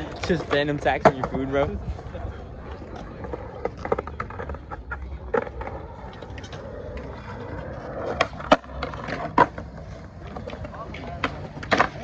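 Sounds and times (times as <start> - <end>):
skateboard wheels rumbling on pavement: 0.0 - 12.0
skateboard sharp clacks: 2.9 - 12.0.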